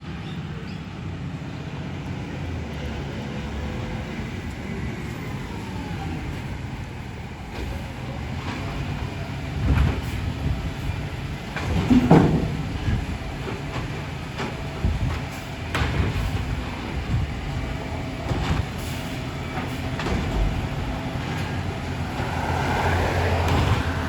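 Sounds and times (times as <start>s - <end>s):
garbage truck engine running: 0.2s - 24.0s
loud clunks and bangs: 8.4s - 24.0s.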